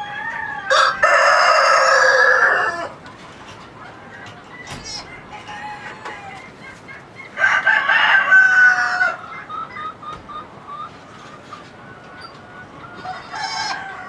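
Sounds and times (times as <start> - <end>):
rooster crowing: 0.0 - 3.0, 5.3 - 6.4, 7.4 - 9.3, 12.9 - 14.0
chickens clucking: 0.0 - 14.0.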